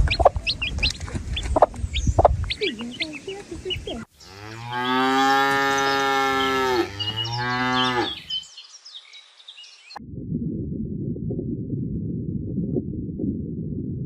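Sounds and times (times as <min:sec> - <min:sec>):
hens clucking: 0:00.0 - 0:08.4
small birds chirping: 0:00.0 - 0:10.0
cow mooing: 0:04.2 - 0:08.4.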